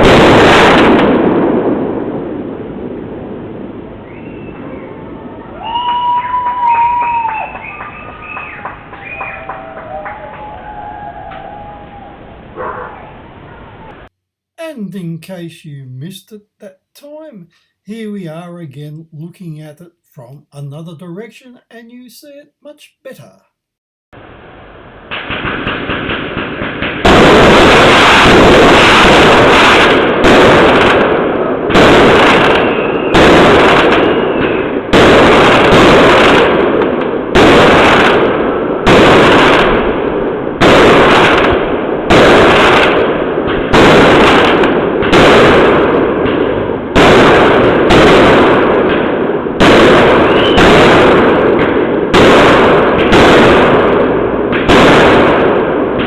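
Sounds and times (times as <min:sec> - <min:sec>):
fireworks crackling bangs: 0:00.0 - 0:04.9, 0:25.1 - 0:56.0.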